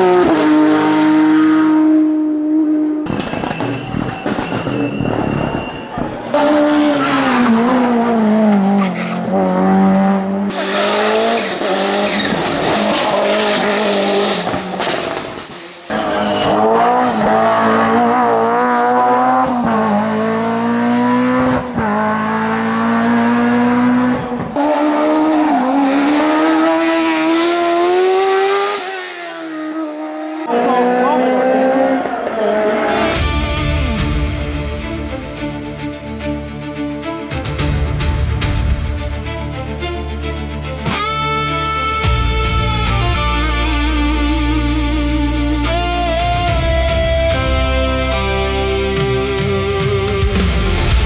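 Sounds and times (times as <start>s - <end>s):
race car engines at full throttle: 0.0s - 51.0s
tyre squeal: 3.2s - 6.2s.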